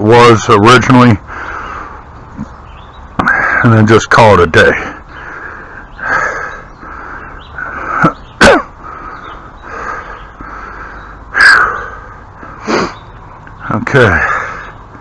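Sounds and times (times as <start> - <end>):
crow cawing: 5.0 - 8.0, 8.8 - 12.6.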